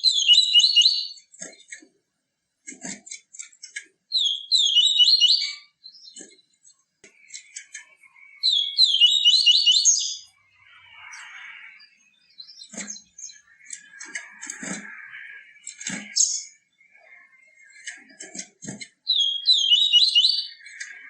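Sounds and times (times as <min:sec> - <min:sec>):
bird singing whistled notes: 0:00.0 - 0:01.2, 0:04.1 - 0:06.2, 0:08.3 - 0:14.1, 0:15.1 - 0:17.3, 0:19.0 - 0:20.9
sharp bird chips: 0:07.1 - 0:21.0.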